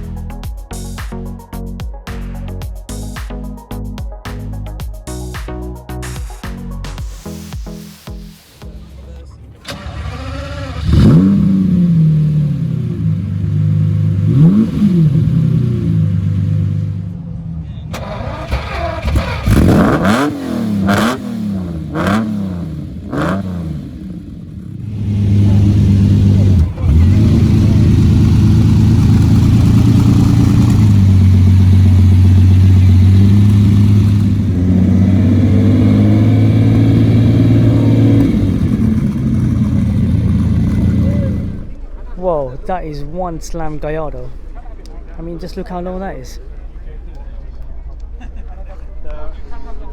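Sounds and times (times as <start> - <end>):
car engine idling: 18.6 - 42.1.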